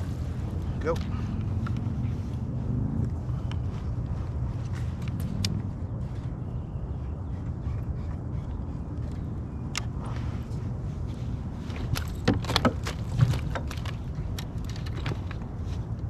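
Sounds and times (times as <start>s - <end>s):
steady low rumble: 0.0s - 16.0s
gear clicking and knocking: 11.7s - 15.6s.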